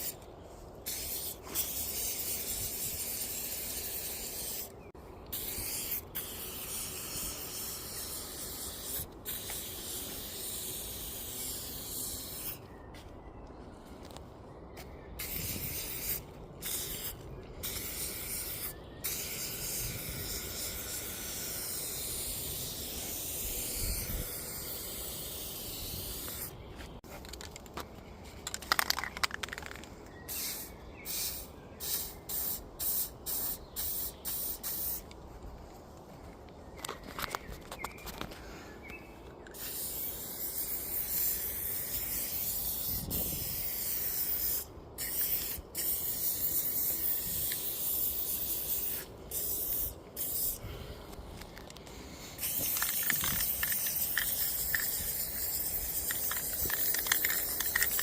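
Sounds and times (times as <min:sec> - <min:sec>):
spray-paint can hissing: 0:00.9 - 0:04.7, 0:05.3 - 0:12.6, 0:15.2 - 0:26.5, 0:30.3 - 0:35.0, 0:39.6 - 0:50.6, 0:52.3 - 0:58.0.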